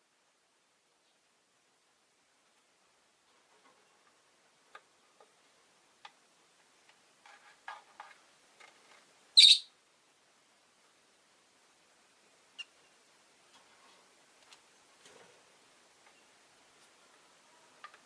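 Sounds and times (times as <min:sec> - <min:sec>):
lovebirds chirping: 0:09.4 - 0:09.7
sharp high-pitched bird call: 0:09.4 - 0:09.7.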